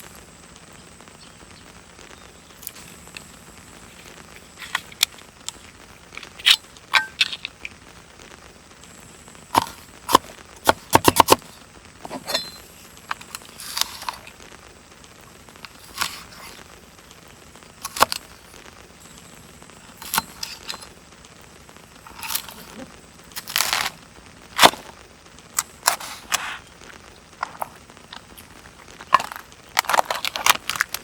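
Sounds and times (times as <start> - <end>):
hard objects clicking and knocking: 9.6 - 14.2, 23.4 - 24.0, 27.4 - 31.0.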